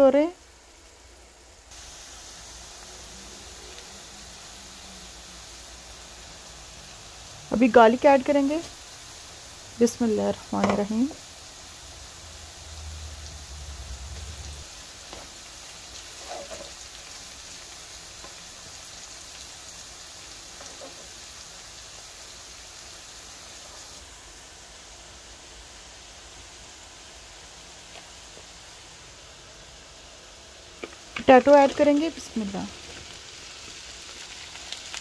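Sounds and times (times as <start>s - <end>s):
onions sizzling in hot oil: 0.0s - 35.0s
spoon touching a wok: 10.6s - 11.0s.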